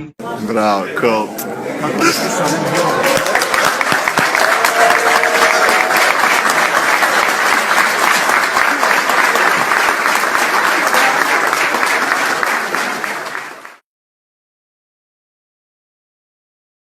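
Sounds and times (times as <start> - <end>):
crowd applauding: 2.0 - 13.8.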